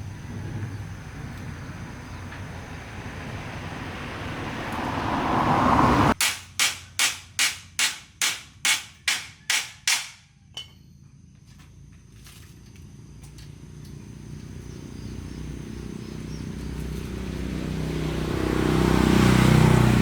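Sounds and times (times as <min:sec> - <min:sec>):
hammer blows on metal: 0:06.2 - 0:10.8.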